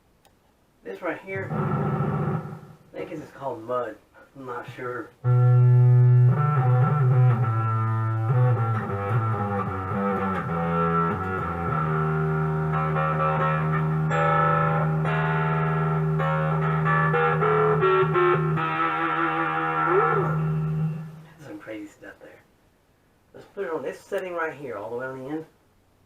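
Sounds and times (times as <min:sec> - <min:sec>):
distorted electric guitar: 0:01.4 - 0:03.0, 0:04.6 - 0:21.4.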